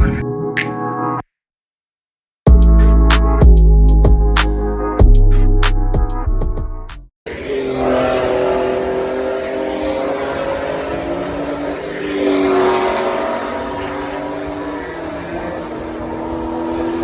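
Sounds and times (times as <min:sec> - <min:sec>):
race car engines at high revs: 0:07.3 - 0:17.0.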